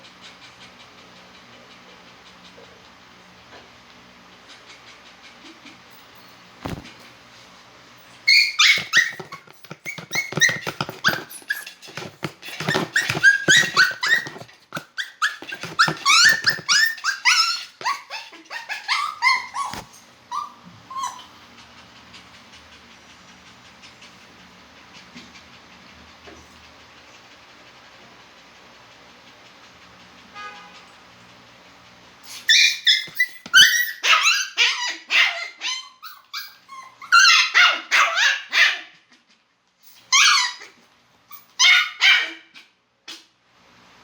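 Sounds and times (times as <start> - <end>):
dog yipping and whining: 8.2 - 22.2, 32.2 - 39.0, 39.8 - 42.6.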